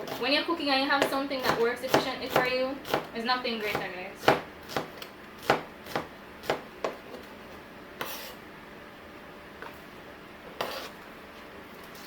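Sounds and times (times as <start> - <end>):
knife scraping board: 0.0 - 0.4, 8.0 - 8.4, 10.4 - 11.0.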